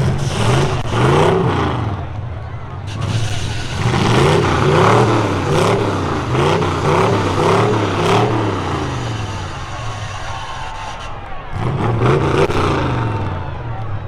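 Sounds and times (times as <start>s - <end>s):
truck engines revving: 0.0s - 14.0s.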